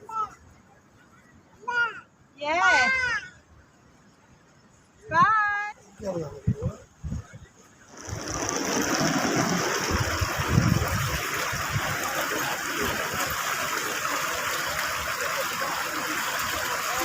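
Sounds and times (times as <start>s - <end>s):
fountain water splashing: 7.8s - 17.0s.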